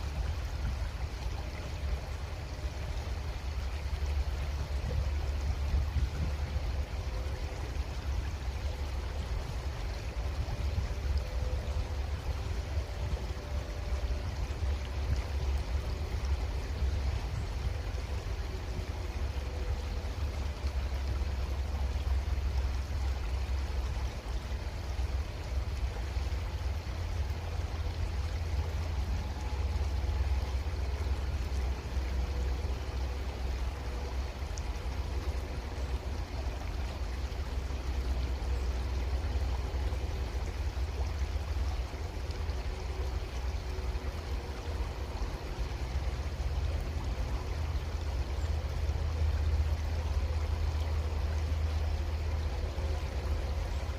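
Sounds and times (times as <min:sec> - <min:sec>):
creek water running: 0:00.0 - 0:53.9.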